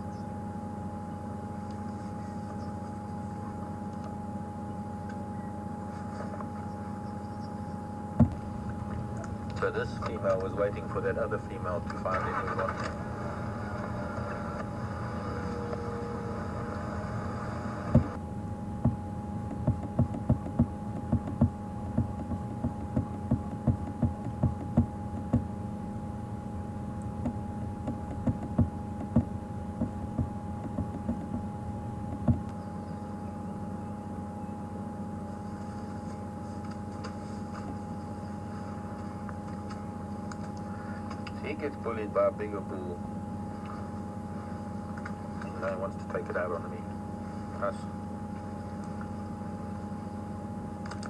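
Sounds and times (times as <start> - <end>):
insects or birds chirping: 4.6 - 8.1, 30.8 - 34.8
vehicle engine running: 4.9 - 34.5
sharp irregular knocks: 18.8 - 25.5, 27.2 - 31.5, 32.1 - 32.5.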